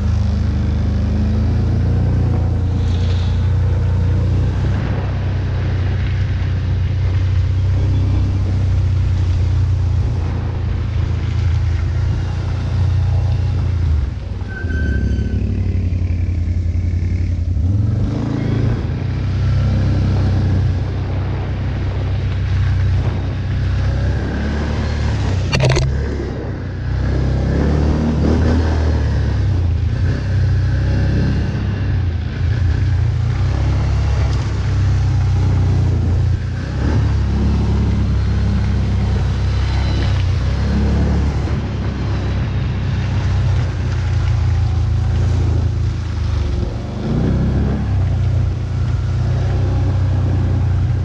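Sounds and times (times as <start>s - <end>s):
quad bike engine revving: 23.0s - 51.0s.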